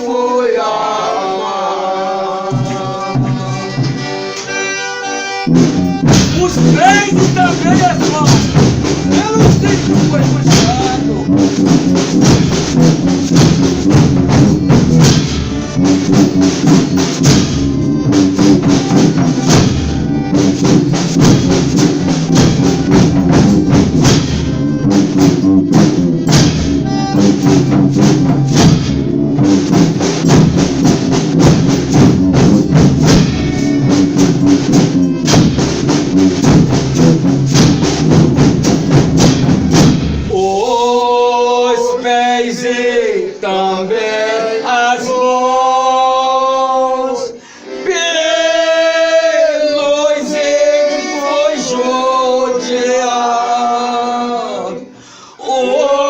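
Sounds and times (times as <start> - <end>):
folk band playing: 0.0 - 56.0
drum and tambourine beat: 5.5 - 41.0.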